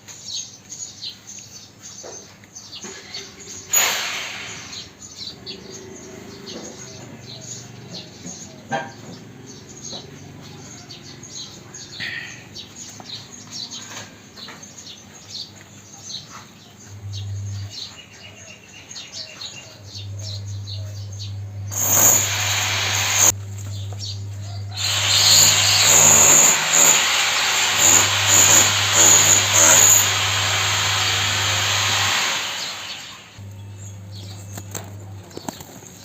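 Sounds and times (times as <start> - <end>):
small birds chirping: 0.0 - 3.7, 4.6 - 31.5, 32.6 - 36.0
loud rushing noise: 21.7 - 23.3.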